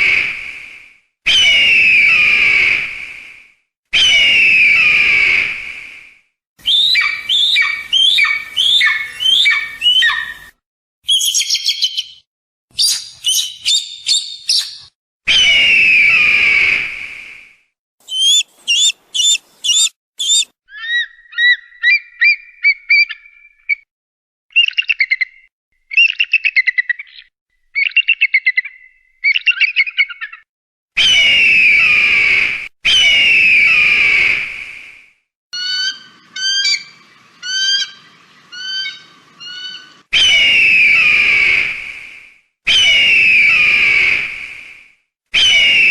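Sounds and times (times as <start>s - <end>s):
hawk calls: 6.7s - 10.5s, 18.0s - 23.3s, 35.6s - 41.6s
hawk screaming: 18.1s - 20.5s.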